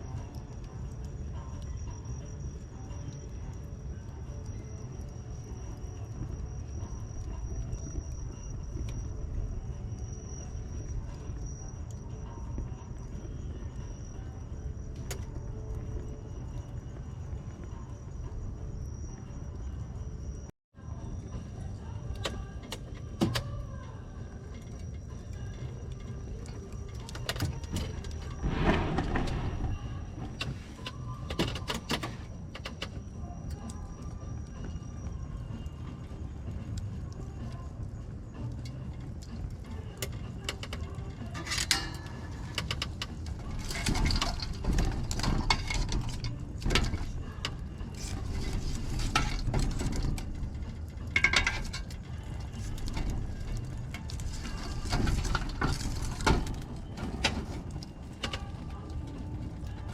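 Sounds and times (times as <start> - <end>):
bonfire burning with crackles: 0.0 - 20.4, 23.6 - 31.1, 32.3 - 59.9
bonfire crackling and popping: 27.9 - 30.9
rushing swell of fire: 28.3 - 30.8.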